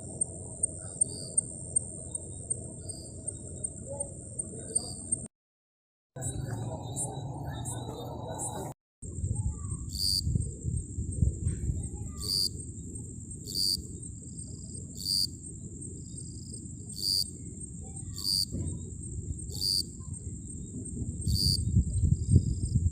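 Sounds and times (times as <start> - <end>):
high-pitched insect trill: 0.0 - 5.3, 9.1 - 22.9
insect chirp: 0.0 - 5.3, 9.1 - 22.9
low background rumble: 6.2 - 22.9.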